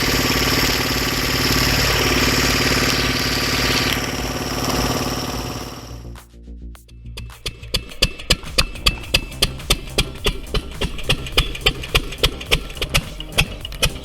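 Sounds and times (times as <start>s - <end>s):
bright hissing: 0.0s - 6.0s
log splitter engine running: 0.0s - 6.0s, 8.3s - 14.0s.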